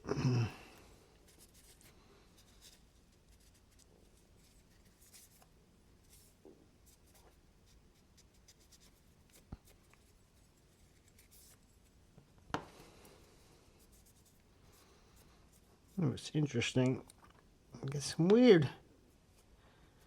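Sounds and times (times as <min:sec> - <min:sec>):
faint rubbing of knife parts: 0:08.6 - 0:12.0.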